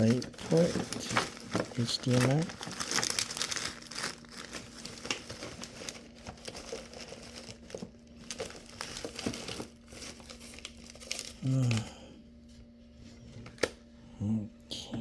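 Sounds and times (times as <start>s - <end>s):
packaging crinkling: 0.0s - 11.8s
faint steady hum: 0.0s - 15.0s.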